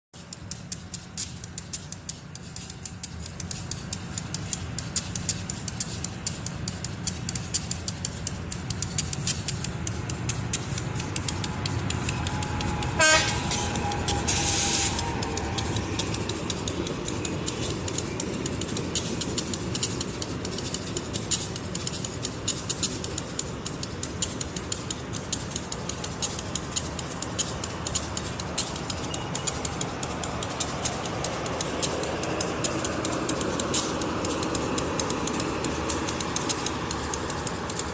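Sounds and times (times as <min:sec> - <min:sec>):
wheels clicking over rails: 0:00.1 - 0:37.9
train rumbling: 0:00.2 - 0:37.9
loud hiss: 0:11.4 - 0:16.2.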